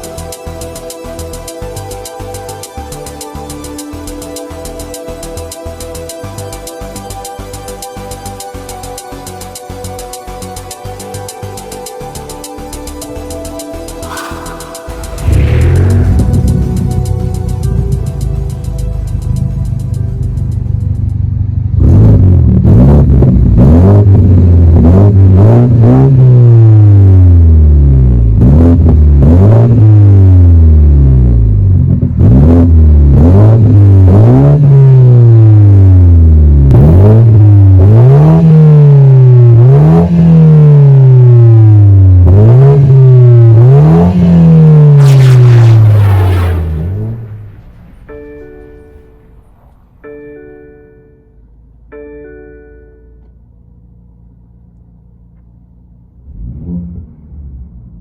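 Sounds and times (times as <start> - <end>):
car engine revving: 12.9 - 50.1, 55.4 - 58.0.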